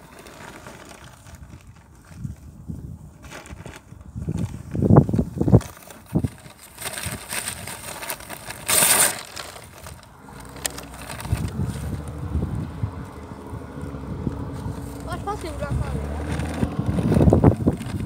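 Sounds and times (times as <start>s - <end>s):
snowplow truck engine rumble: 9.3s - 18.0s.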